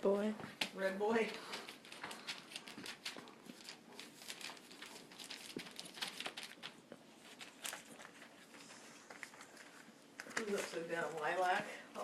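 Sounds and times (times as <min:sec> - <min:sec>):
puppies scuffling: 0:00.2 - 0:12.0.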